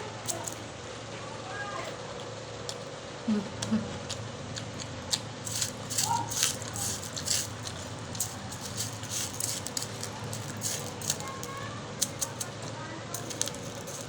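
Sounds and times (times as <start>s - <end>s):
mango being chewed: 1.8s - 12.6s.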